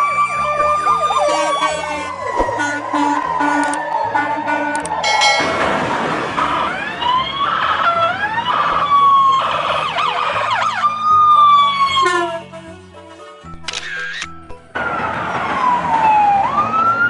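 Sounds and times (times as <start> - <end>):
siren wailing: 0.0 - 12.2, 14.8 - 17.0
steady tones: 4.4 - 7.2.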